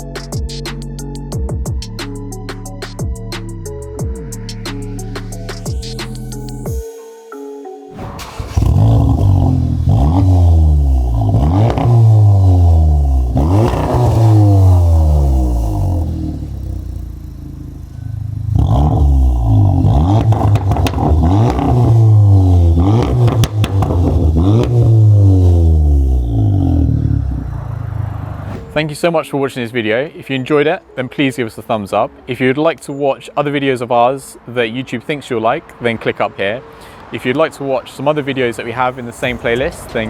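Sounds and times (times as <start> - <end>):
car engine revving: 8.0 - 28.8.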